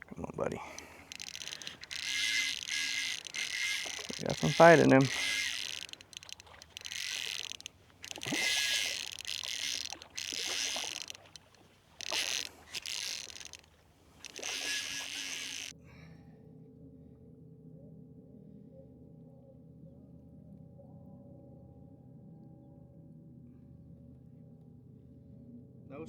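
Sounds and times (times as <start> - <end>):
fly reel ratcheting: 0.0 - 15.8.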